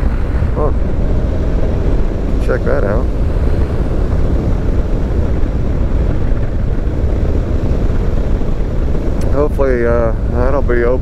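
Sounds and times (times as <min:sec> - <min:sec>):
wind rush on microphone: 0:00.0 - 0:11.0.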